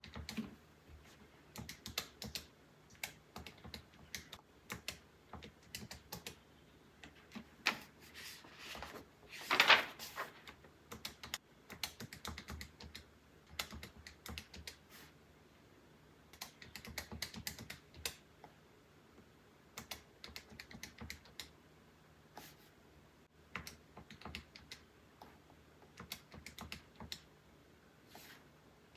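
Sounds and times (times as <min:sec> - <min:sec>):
paper rustle: 0:07.6 - 0:10.6.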